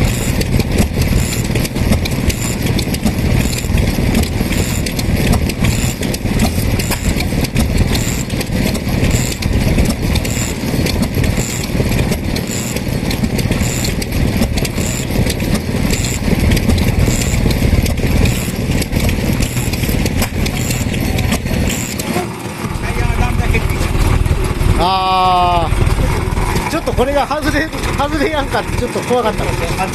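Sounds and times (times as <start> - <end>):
engine running with fast beat: 0.0 - 29.9.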